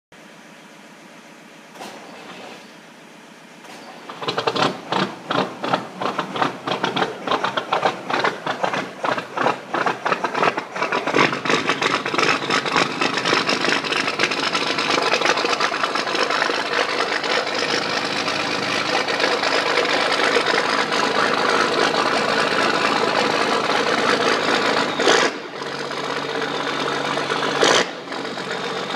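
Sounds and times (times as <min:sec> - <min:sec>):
truck engine starting and running: 0:01.6 - 0:28.9.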